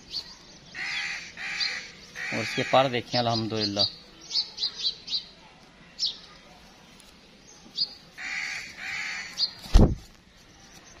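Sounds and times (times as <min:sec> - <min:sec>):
harsh bird calls: 0:00.0 - 0:06.4, 0:07.7 - 0:09.9
small birds chirping: 0:00.0 - 0:11.0.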